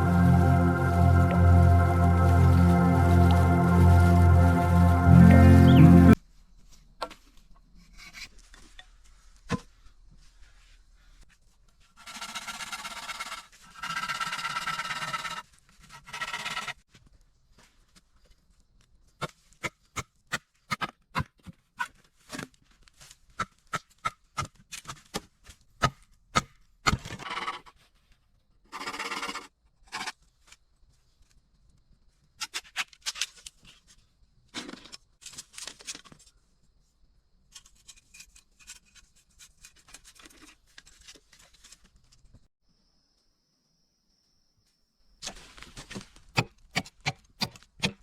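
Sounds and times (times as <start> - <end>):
blade chopping bamboo: 23.4 - 27.2, 46.4 - 48.0.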